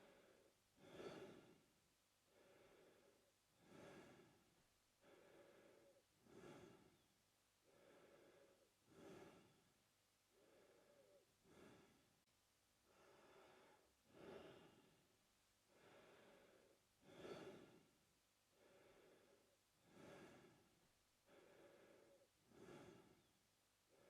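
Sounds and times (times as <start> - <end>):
man breathing through mouth: 0.0 - 1.6, 2.3 - 4.4, 5.0 - 9.7, 10.4 - 12.1, 12.9 - 15.0, 15.7 - 17.9, 18.6 - 20.7, 21.3 - 23.3.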